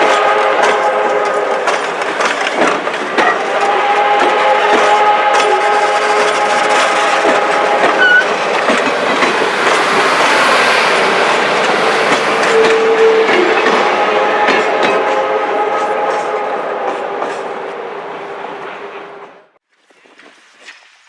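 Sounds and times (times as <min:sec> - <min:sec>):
train wheels clicking over rails: 0:00.0 - 0:17.6.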